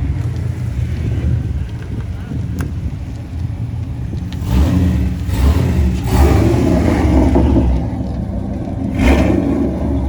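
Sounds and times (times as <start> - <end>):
car engine revving: 4.3 - 10.0.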